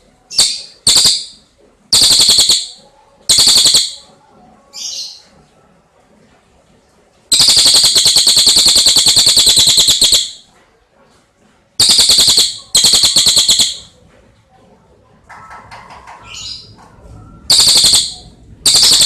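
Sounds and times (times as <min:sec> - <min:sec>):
bird trilling: 0:00.3 - 0:04.1, 0:07.3 - 0:10.4, 0:11.8 - 0:13.9, 0:17.4 - 0:19.0.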